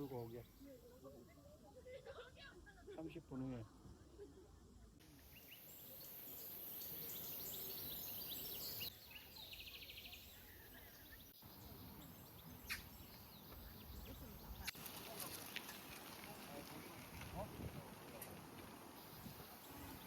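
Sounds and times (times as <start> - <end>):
steady high hiss: 5.0 - 17.2
birds chirping: 5.1 - 17.1, 17.8 - 20.0.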